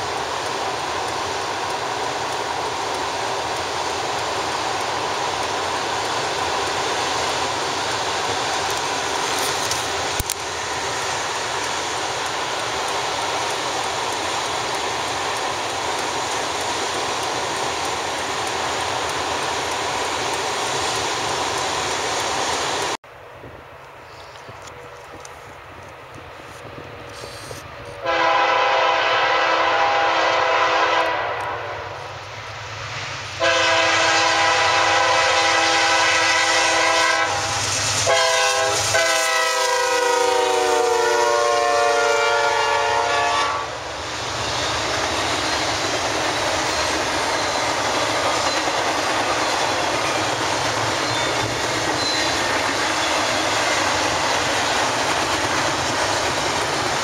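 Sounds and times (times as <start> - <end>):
train rumble and wheel clatter: 0.0 - 57.0
locomotive air horn blasts: 28.0 - 32.0, 33.4 - 43.8.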